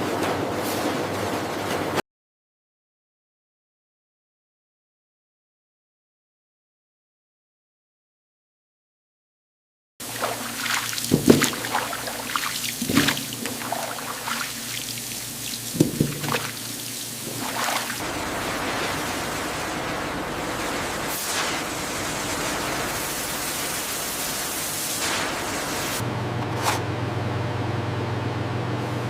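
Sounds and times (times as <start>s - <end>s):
sharp knocks: 11.1s - 12.0s, 15.8s - 16.5s.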